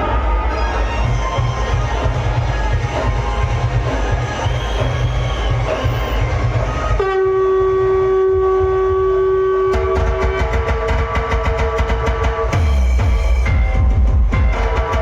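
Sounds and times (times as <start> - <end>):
loud dance music: 0.0 - 7.2, 9.5 - 15.0
train horn blast: 6.7 - 12.6.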